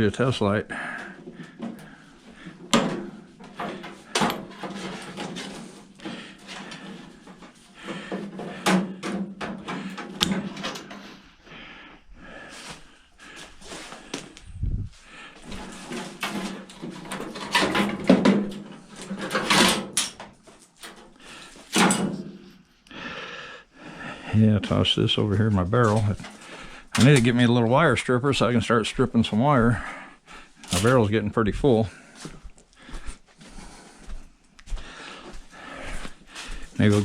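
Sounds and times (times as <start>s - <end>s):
metal parts clattering: 2.7s - 7.6s, 15.5s - 21.0s.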